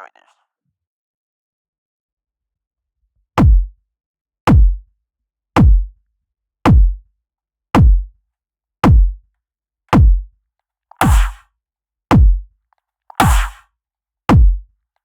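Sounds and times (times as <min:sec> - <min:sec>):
deep kick drum hits: 0:03.4 - 0:03.7, 0:04.5 - 0:04.8, 0:05.6 - 0:05.9, 0:06.7 - 0:07.0, 0:07.8 - 0:08.1, 0:08.8 - 0:09.2, 0:10.0 - 0:10.2, 0:11.0 - 0:11.4, 0:12.1 - 0:12.4, 0:13.2 - 0:13.6, 0:14.3 - 0:14.6.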